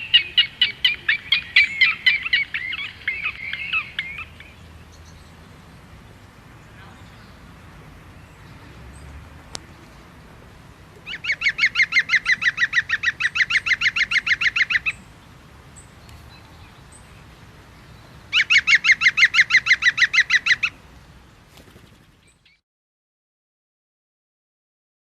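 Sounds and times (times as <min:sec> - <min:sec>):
bird calling in fast runs: 0:21.5 - 0:22.6.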